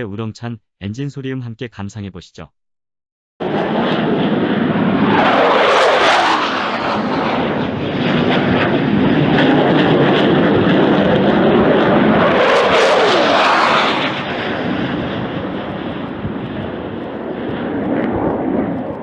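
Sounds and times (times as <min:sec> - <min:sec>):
fighter jet engines roaring: 0:03.4 - 0:19.0.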